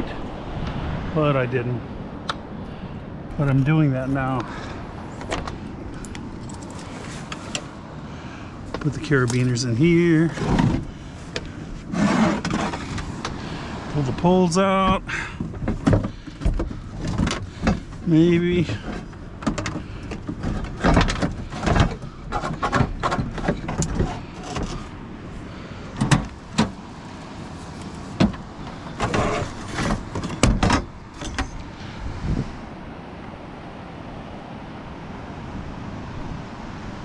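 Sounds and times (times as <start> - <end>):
knocks and clanks of poles: 14.9 - 24.9, 28.1 - 31.7.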